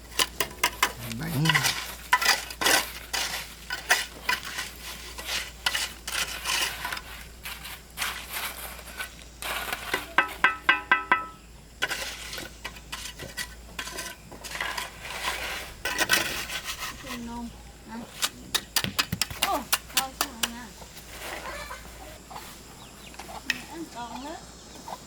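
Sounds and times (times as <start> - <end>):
utensils clinking against pots: 10.1 - 12.0.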